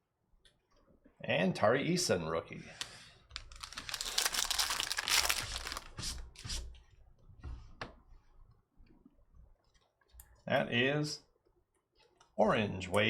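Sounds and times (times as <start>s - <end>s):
cards clicking and rustling: 3.4s - 6.0s
foil wrapper tearing and crinkling: 3.4s - 6.1s.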